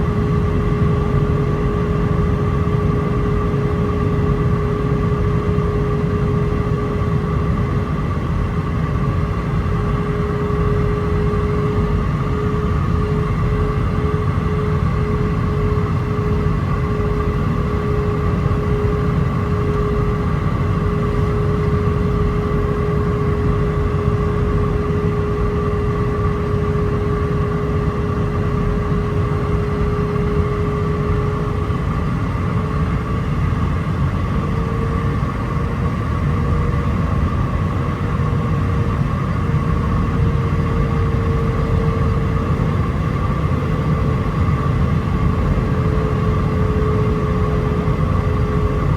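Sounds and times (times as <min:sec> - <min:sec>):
cabin airflow rush: 0:00.0 - 0:48.9
jet engine whine: 0:00.0 - 0:48.9.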